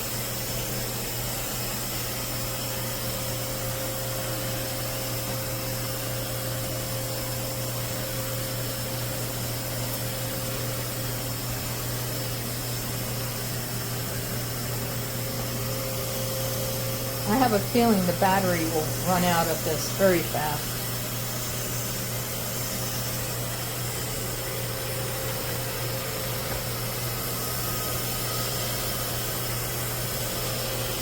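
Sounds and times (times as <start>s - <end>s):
robot vacuum running: 10.4s - 31.0s.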